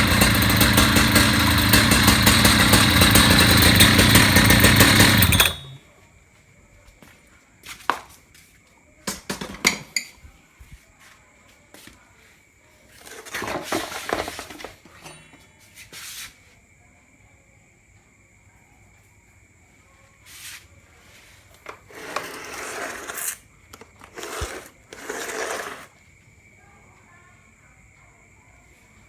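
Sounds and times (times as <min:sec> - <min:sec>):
concrete cutter engine running: 0:00.0 - 0:05.8, 0:21.7 - 0:25.9.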